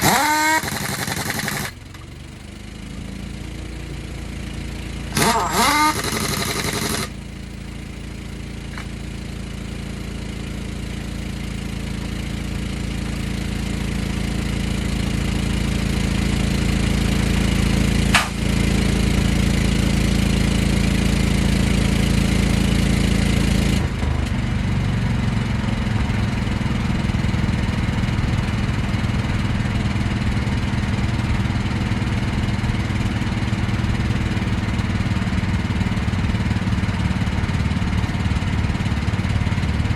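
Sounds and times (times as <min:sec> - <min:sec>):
sharp click: 0:00.0 - 0:02.1, 0:05.2 - 0:07.1, 0:18.1 - 0:18.5
engine running: 0:00.0 - 0:39.9.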